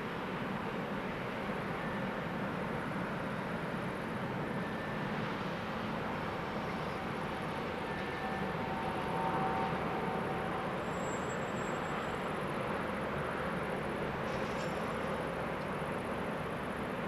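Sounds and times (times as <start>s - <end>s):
train rumbling: 5.2s - 17.0s
faint wheel squealing: 10.6s - 12.3s.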